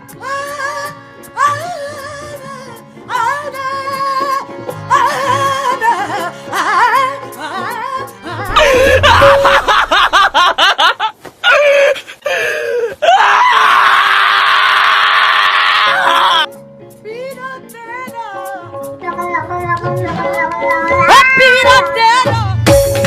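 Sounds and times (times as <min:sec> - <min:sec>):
music: 0:00.0 - 0:10.2, 0:15.2 - 0:23.0
harsh scream: 0:08.5 - 0:09.9, 0:13.0 - 0:16.5
voice warbling: 0:08.5 - 0:10.4.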